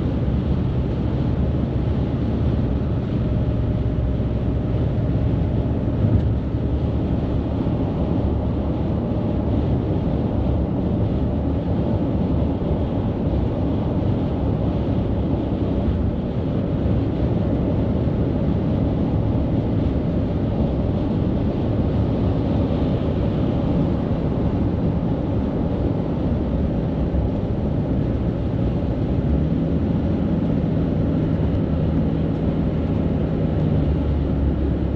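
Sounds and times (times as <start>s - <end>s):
low engine drone: 0.0s - 34.9s.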